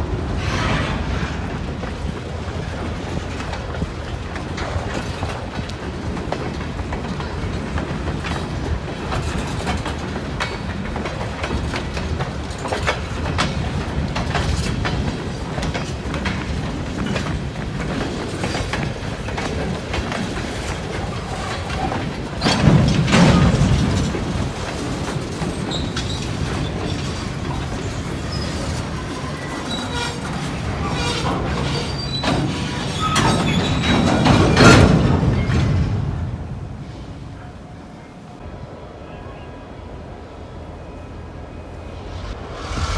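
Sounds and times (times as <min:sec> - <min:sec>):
wheels clicking over rails: 0:00.0 - 0:37.2
train rumbling past: 0:00.0 - 0:37.4, 0:39.8 - 0:42.9
wheel squeals: 0:20.4 - 0:36.1.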